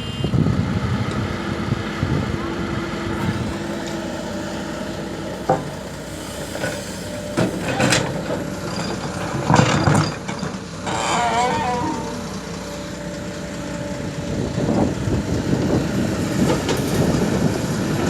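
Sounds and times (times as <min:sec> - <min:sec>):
diesel engine running: 0:00.0 - 0:18.0
excavator knocks and clatters: 0:06.6 - 0:11.2.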